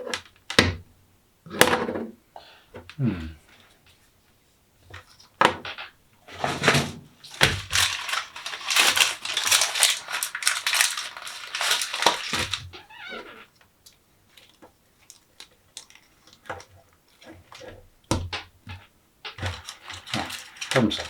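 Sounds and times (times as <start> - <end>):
plastic packaging crinkling: 6.3 - 13.2, 13.8 - 17.7, 19.3 - 21.0.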